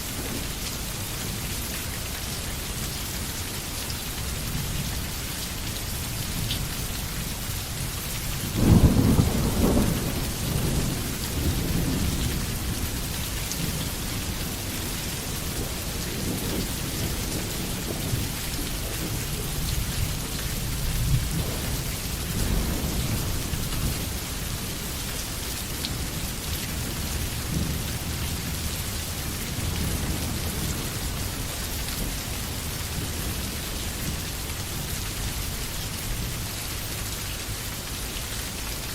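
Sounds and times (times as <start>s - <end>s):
steady rain falling: 0.0s - 38.9s
distant thunder rolls: 8.5s - 14.3s
thunder clap rumbling: 8.5s - 24.2s.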